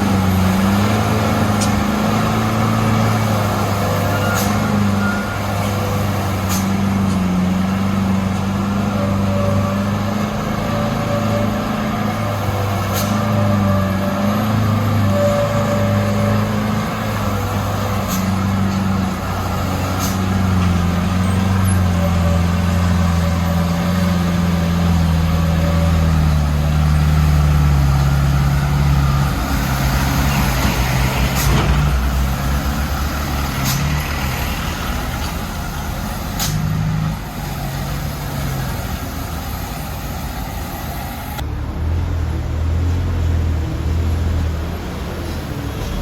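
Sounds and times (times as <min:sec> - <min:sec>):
truck diesel engine under load: 0:00.0 - 0:46.0.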